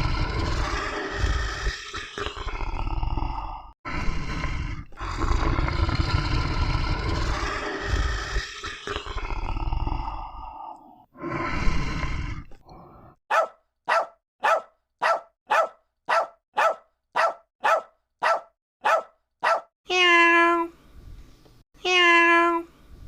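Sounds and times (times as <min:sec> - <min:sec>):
dog growling: 0:00.0 - 0:10.6
dog barking: 0:13.3 - 0:19.7
cat meowing: 0:19.9 - 0:20.7.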